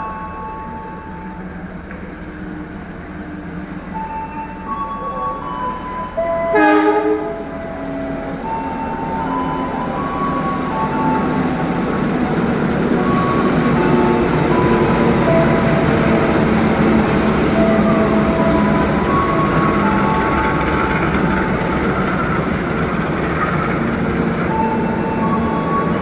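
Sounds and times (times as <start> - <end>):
diesel train engine running: 0.0 - 26.0
train horn blast: 6.4 - 9.1.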